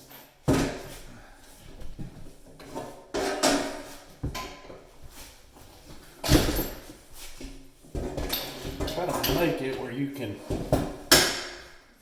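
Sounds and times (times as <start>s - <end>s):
hard parts knocking and rattling: 7.9s - 11.8s.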